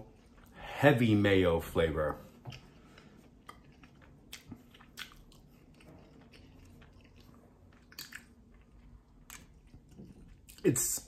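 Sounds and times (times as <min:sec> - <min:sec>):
faint chewing with crunches: 0:00.0 - 0:00.6, 0:02.2 - 0:11.0.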